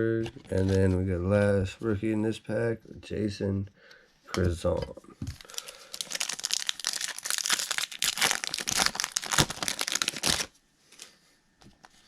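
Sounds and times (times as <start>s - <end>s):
foil wrapper crinkling and tearing: 0.4s - 1.0s, 5.3s - 10.5s.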